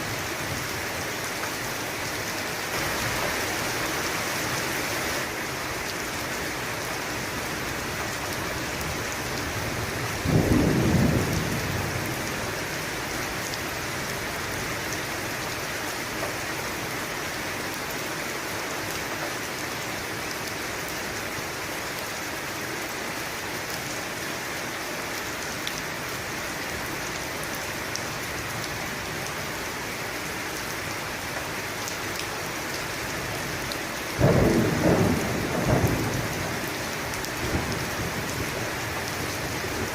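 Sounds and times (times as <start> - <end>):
heavy rain falling: 0.0 - 39.9
thunder clap: 34.2 - 36.6.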